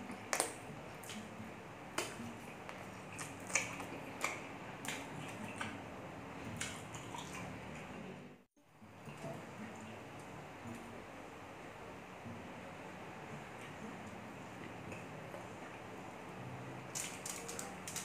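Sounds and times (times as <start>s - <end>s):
wet chewing: 2.0s - 5.8s.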